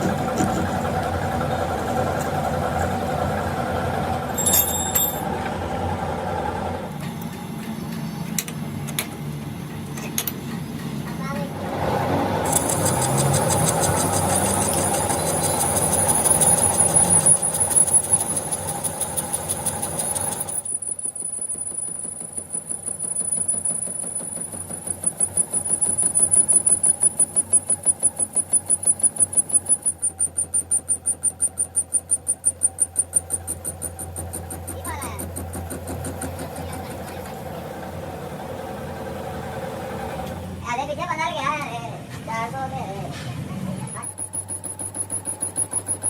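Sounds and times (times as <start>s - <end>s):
machinery high whine: 10.5s - 40.6s
cutting noise: 12.4s - 20.7s
rhythmic machine pulsing: 12.5s - 37.4s, 43.9s - 46.0s.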